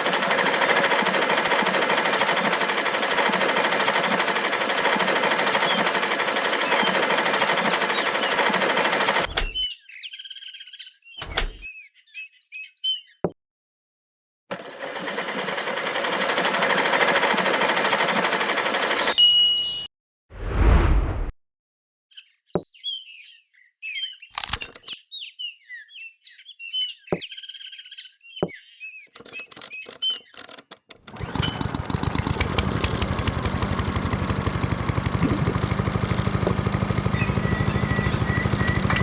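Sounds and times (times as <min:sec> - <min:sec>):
water pump whirring: 0:00.0 - 0:09.6, 0:31.0 - 0:39.0
birds chirping: 0:28.0 - 0:39.0.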